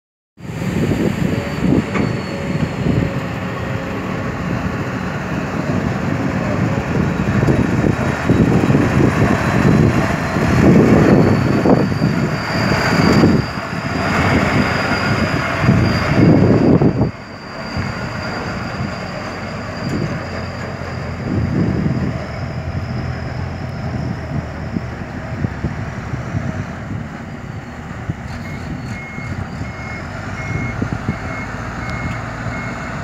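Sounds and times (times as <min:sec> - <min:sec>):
excavator diesel engine working: 0:00.4 - 0:33.0
thin high whine: 0:08.2 - 0:25.2.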